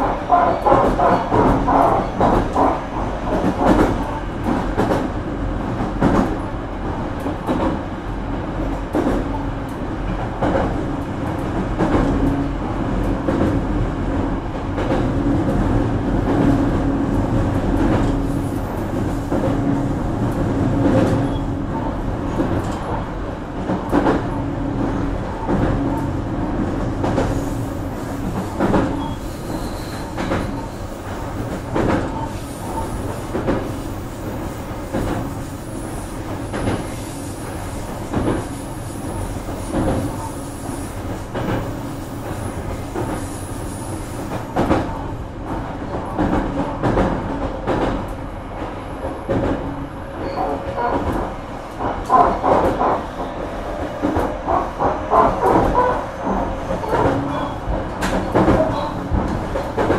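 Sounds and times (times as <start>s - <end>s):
train wheel and rail noise: 0.0s - 59.9s.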